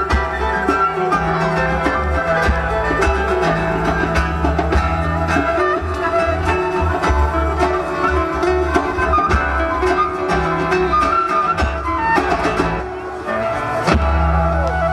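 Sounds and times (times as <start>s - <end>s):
drum strikes: 0.0s - 10.8s, 13.8s - 14.8s
flute melody: 0.0s - 14.9s
folk-rock band playing live: 0.0s - 14.9s.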